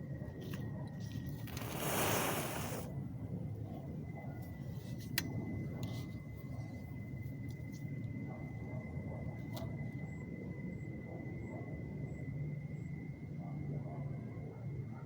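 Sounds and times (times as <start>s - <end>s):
match struck and flaring: 1.4s - 2.9s.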